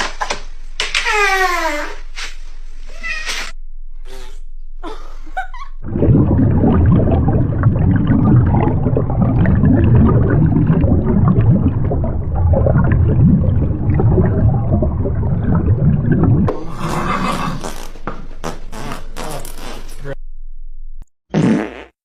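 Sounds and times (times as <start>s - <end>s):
low sputtering rumble: 3.6s - 16.6s.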